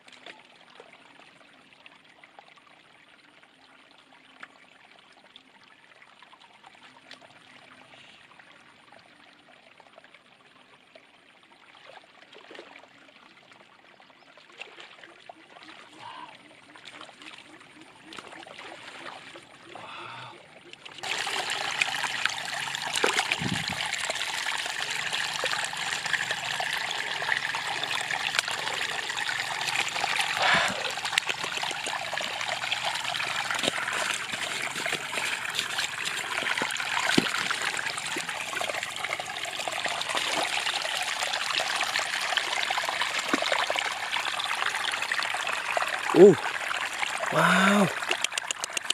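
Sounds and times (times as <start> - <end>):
water trickling: 0.0 - 48.9
stream water rushing: 21.0 - 48.9.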